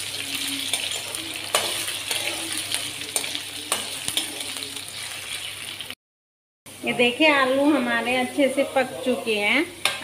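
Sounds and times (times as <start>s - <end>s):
potatoes sizzling in hot fat: 0.0s - 6.0s, 6.7s - 10.0s
metal spatula scraping pan: 0.6s - 5.5s.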